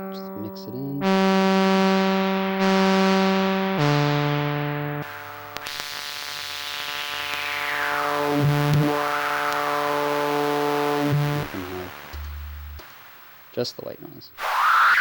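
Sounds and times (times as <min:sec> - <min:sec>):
synthesizer sustained notes: 0:01.0 - 0:13.2, 0:14.4 - 0:15.0
resonant filter sweep: 0:05.0 - 0:13.2, 0:14.4 - 0:15.0
white noise hiss: 0:05.2 - 0:15.0.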